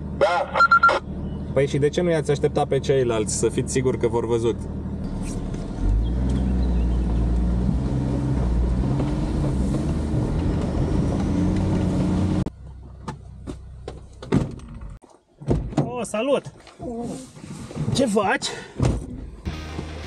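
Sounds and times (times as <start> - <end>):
suv engine from inside cabin: 0.0 - 15.0.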